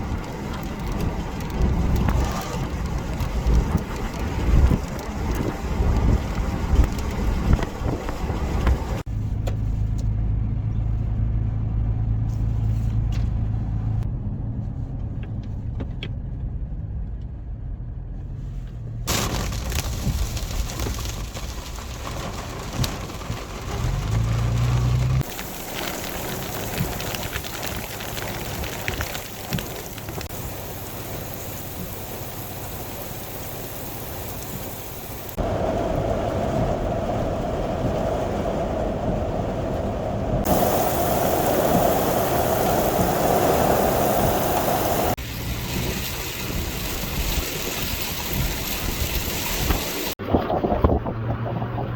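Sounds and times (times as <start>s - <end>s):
heavy rain or rushing water: 0.0s - 9.1s, 19.1s - 50.2s
low engine hum: 0.0s - 19.3s, 20.1s - 51.9s
car engine and road rumble: 0.0s - 51.9s.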